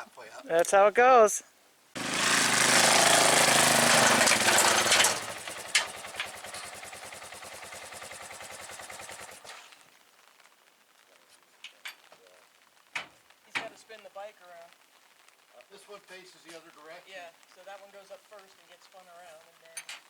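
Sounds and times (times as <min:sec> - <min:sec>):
motorcycle engine revving and idling: 0:02.0 - 0:09.7.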